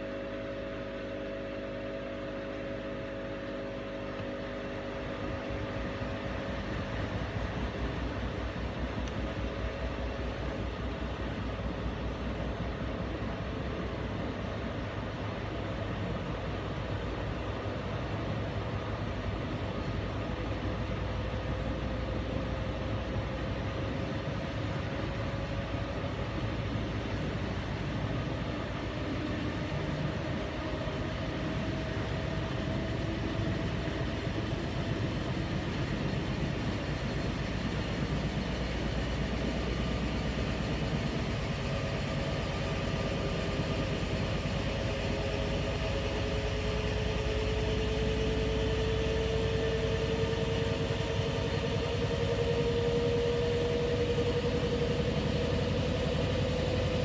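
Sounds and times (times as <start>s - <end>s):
washing machine rumble and hum: 0.0s - 57.0s
motor whine rising in pitch: 20.9s - 57.0s.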